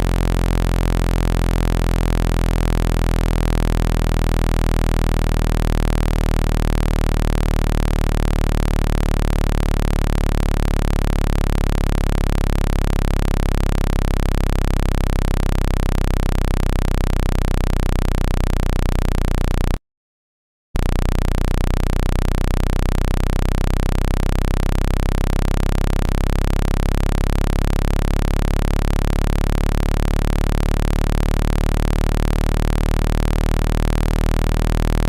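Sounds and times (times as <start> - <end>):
low electronic buzz tone: 0.0 - 19.8, 20.8 - 35.0.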